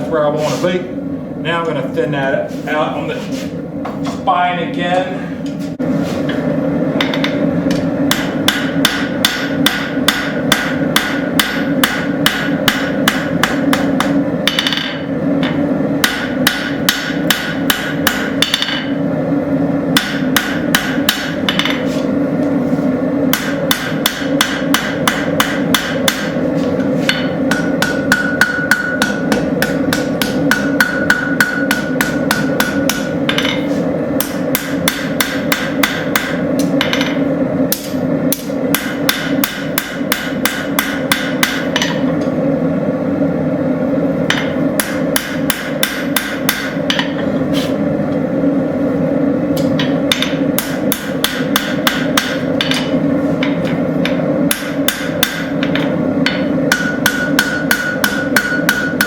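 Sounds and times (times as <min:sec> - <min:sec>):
steady hum: 0:00.0 - 0:59.0
hammer striking metal on anvil: 0:07.0 - 0:19.0, 0:19.9 - 0:21.9, 0:23.3 - 0:42.4, 0:44.2 - 0:47.3, 0:49.6 - 0:59.0.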